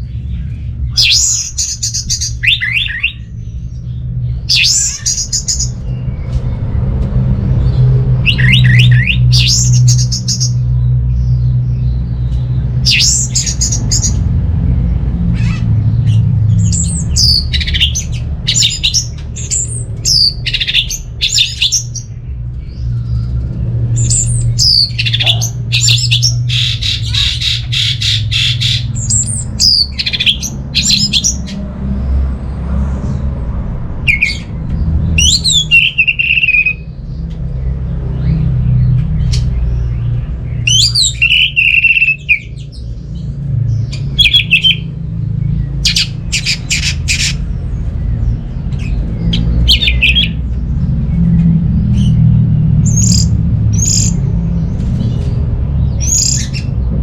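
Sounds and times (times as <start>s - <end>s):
steady low rumble: 0.0s - 57.0s
thrush singing: 0.9s - 3.4s, 24.0s - 31.5s, 44.2s - 45.0s, 49.2s - 50.4s.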